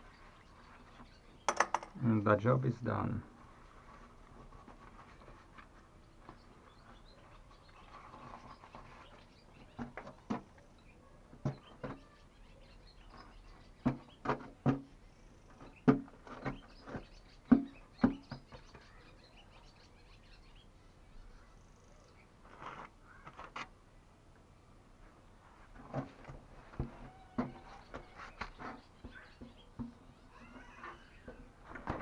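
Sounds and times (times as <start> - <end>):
faint background noise: 0.0 - 32.0
knocks and clatters: 1.5 - 2.0.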